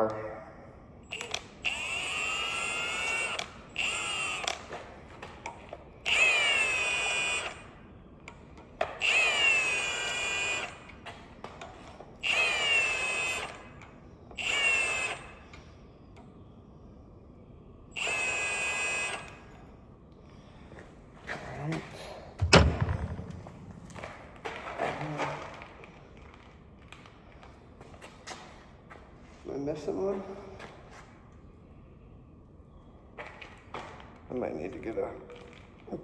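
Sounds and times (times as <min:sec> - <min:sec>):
impact wrench whining: 0:01.1 - 0:04.8, 0:05.4 - 0:07.8, 0:08.8 - 0:11.0, 0:11.6 - 0:15.5, 0:17.9 - 0:19.6, 0:22.4 - 0:24.4.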